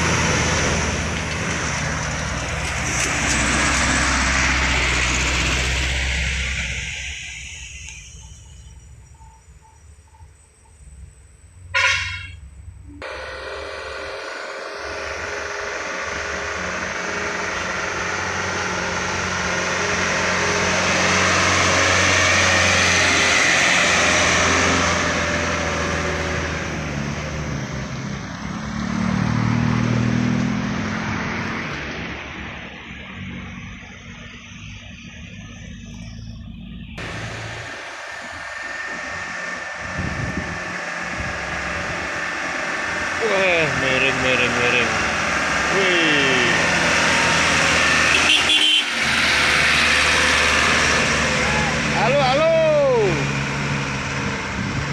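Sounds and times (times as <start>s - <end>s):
heavy vehicle engine passing: 0.0s - 10.2s, 12.5s - 54.9s
vehicle air horn: 11.7s - 12.4s, 48.0s - 49.0s.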